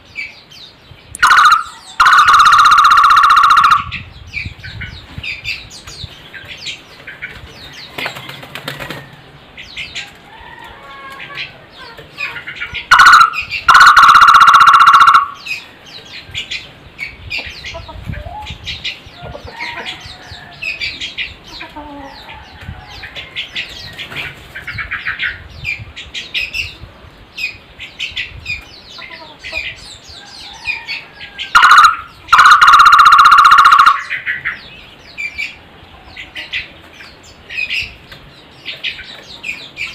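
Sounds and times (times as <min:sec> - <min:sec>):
small birds chirping and ticking: 0:00.0 - 0:39.9
barbet call with pulsing trill: 0:01.2 - 0:04.0, 0:12.9 - 0:15.5, 0:31.5 - 0:34.2.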